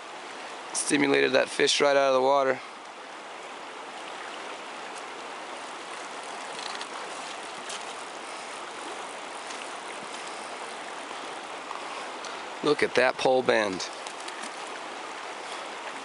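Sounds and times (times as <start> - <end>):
river water rushing: 0.0 - 16.0
faint clicks: 6.0 - 7.1, 13.7 - 14.7.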